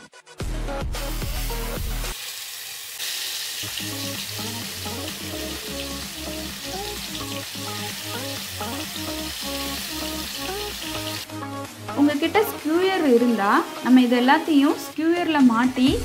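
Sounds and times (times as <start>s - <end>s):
background music: 0.0s - 2.2s, 3.6s - 16.0s
food sizzling in hot oil: 1.2s - 11.3s.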